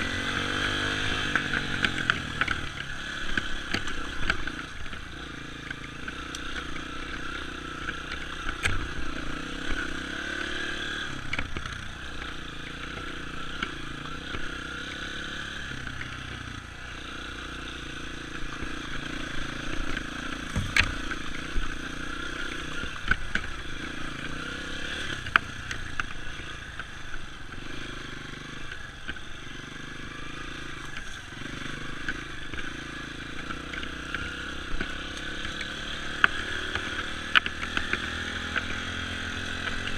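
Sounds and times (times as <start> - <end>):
dirt bike engine revving: 0.0 - 39.9
sharp knocks and clatter: 19.9 - 21.2.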